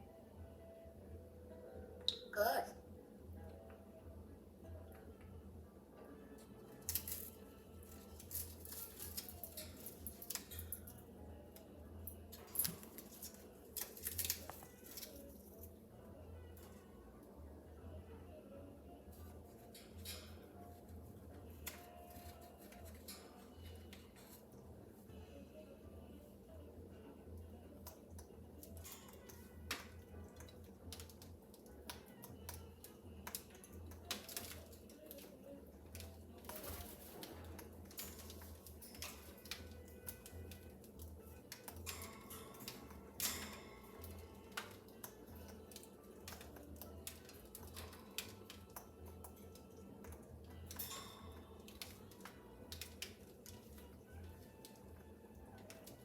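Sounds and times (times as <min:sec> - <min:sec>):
low steady hum: 0:00.0 - 0:56.0
parrot chewing foraging toy: 0:06.4 - 0:11.0, 0:12.2 - 0:15.7.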